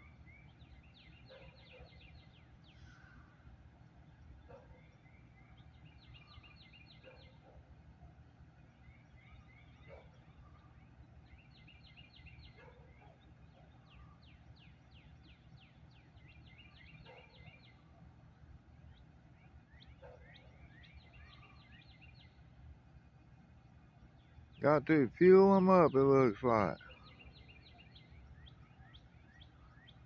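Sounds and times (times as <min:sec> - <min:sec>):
songbird singing: 0:00.0 - 0:30.0
low steady rumble: 0:13.2 - 0:25.2.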